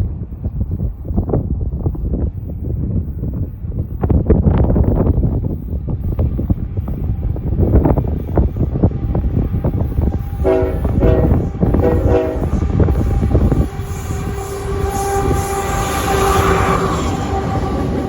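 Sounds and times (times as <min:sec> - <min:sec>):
train wheels rumbling on rails: 0:00.1 - 0:18.0
locomotive horn blasts: 0:10.4 - 0:13.7
steady whining tone: 0:10.5 - 0:12.9.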